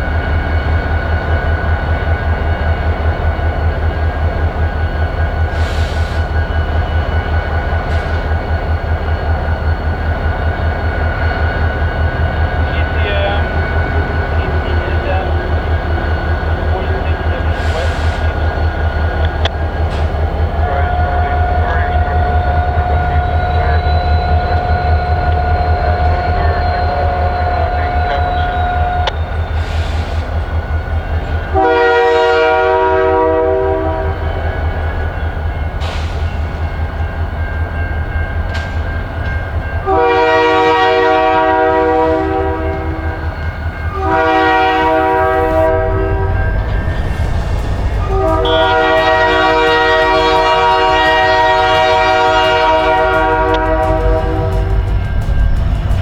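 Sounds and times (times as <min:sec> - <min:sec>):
locomotive horn blasts: 0:31.5 - 0:34.3, 0:39.8 - 0:46.8, 0:47.8 - 0:55.5
diesel engine throbbing: 0:43.9 - 0:56.0.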